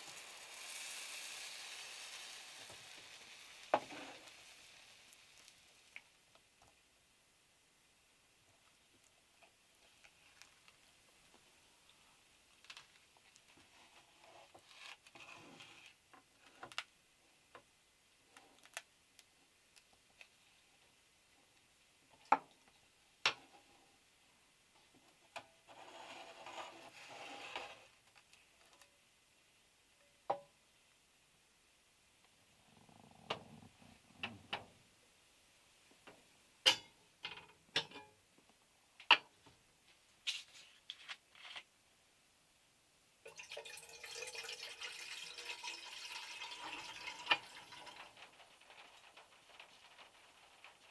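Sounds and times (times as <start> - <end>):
raindrops on metal roof: 43.4 - 50.9.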